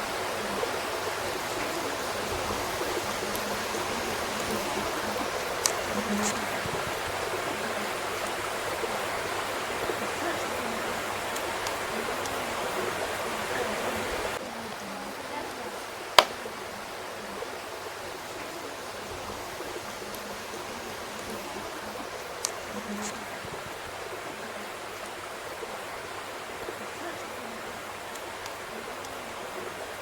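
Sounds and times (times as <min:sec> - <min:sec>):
wood fire hissing: 0:00.0 - 0:14.4, 0:15.8 - 0:24.2.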